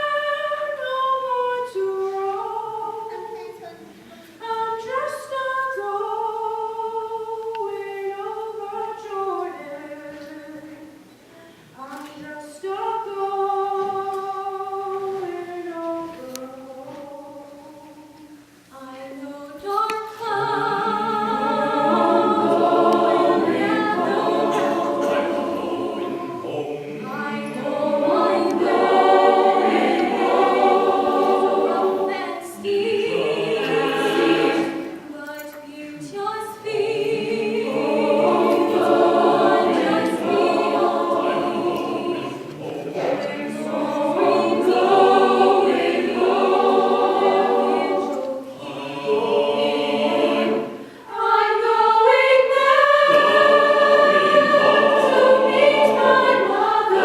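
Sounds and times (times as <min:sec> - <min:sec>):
choir singing sustained chords: 0:00.0 - 0:03.0, 0:12.6 - 0:18.2, 0:18.8 - 0:35.2, 0:36.1 - 0:57.0.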